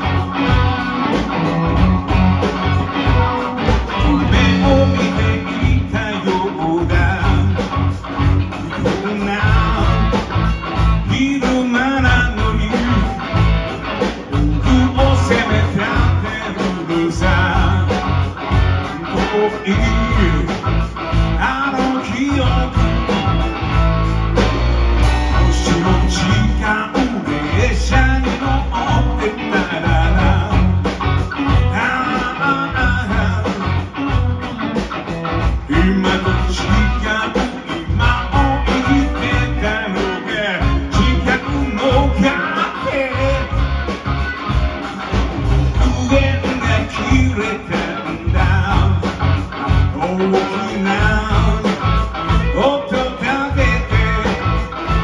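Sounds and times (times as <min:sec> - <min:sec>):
rock band music: 0:00.0 - 0:55.0.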